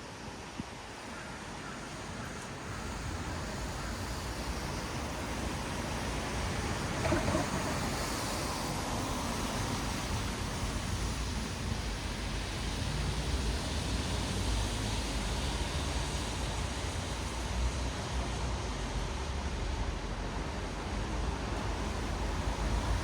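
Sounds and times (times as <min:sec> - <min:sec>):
tyres hissing on wet asphalt: 0:00.0 - 0:23.0.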